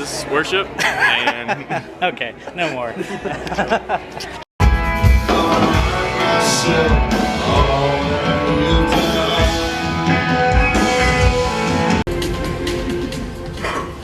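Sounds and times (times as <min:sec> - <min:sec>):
rock band with guitars and drums: 0:04.6 - 0:14.0.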